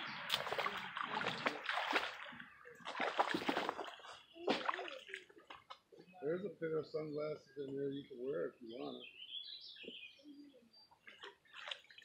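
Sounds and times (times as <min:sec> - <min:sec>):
water splashing and sloshing: 0:00.0 - 0:06.0, 0:10.9 - 0:12.0.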